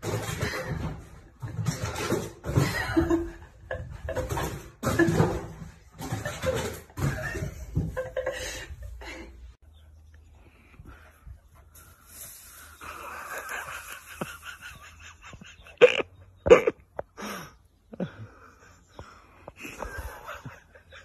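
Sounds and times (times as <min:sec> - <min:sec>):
person laughing hard: 0:12.8 - 0:16.7.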